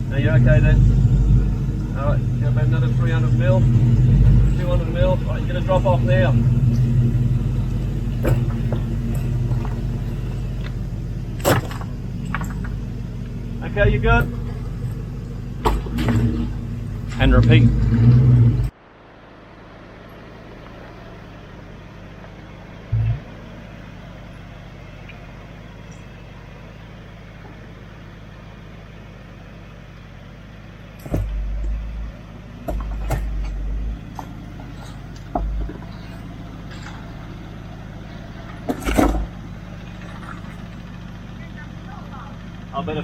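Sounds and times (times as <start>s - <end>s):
short louder rumbles: 0.0s - 21.8s, 22.4s - 24.1s, 30.9s - 42.8s
vehicle engine running at low revs: 0.0s - 43.0s
sharp knocks: 31.0s - 34.4s.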